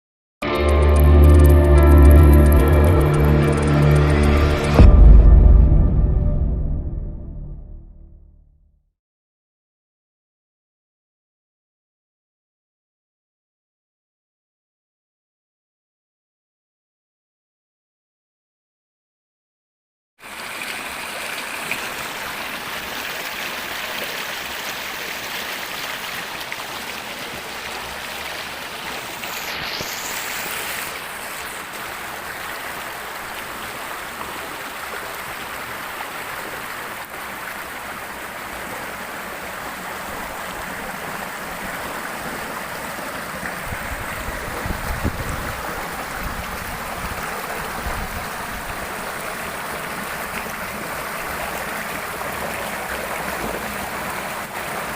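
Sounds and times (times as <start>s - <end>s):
low rumbling: 0.8s - 8.6s
river flowing over rocks: 20.2s - 54.9s.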